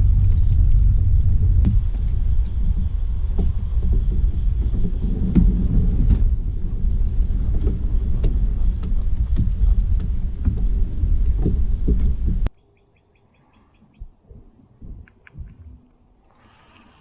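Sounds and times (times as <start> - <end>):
steady low rumble: 0.0 - 12.5.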